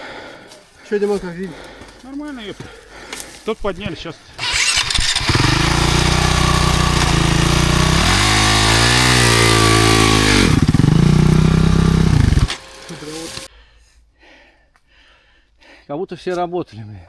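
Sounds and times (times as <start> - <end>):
motorcycle engine revving: 4.4 - 13.5.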